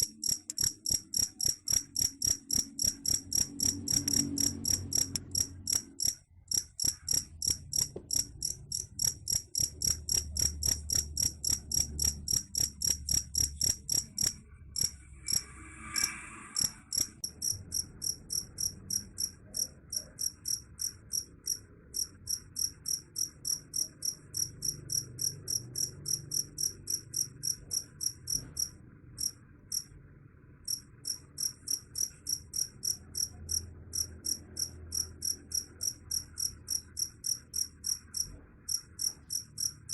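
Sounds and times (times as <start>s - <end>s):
cricket chirping: 0.0s - 30.0s, 30.6s - 39.9s.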